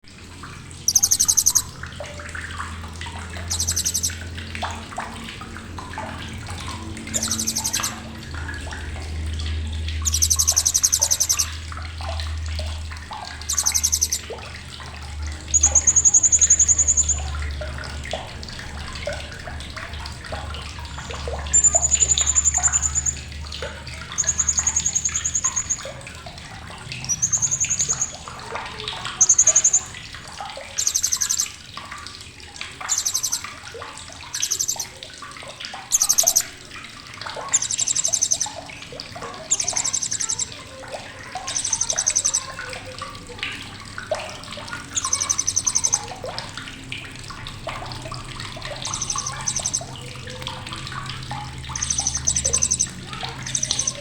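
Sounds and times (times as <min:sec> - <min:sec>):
faint bird chirping: 0:00.7 - 0:04.4, 0:06.2 - 0:09.0, 0:09.8 - 0:14.5, 0:15.1 - 0:18.2, 0:18.8 - 0:31.9, 0:32.6 - 0:35.0, 0:35.9 - 0:36.7, 0:37.4 - 0:46.4, 0:48.6 - 0:54.0
parrot chattering calls: 0:00.9 - 0:01.7, 0:03.5 - 0:04.1, 0:07.1 - 0:08.0, 0:10.0 - 0:11.5, 0:13.4 - 0:14.2, 0:21.5 - 0:23.2, 0:24.1 - 0:25.8, 0:27.0 - 0:28.5, 0:29.1 - 0:29.9, 0:30.8 - 0:31.5, 0:32.9 - 0:33.4, 0:34.3 - 0:34.9, 0:35.9 - 0:36.4, 0:37.5 - 0:38.5, 0:39.3 - 0:40.6, 0:41.4 - 0:42.5, 0:45.0 - 0:46.1, 0:48.8 - 0:49.9, 0:51.7 - 0:54.0.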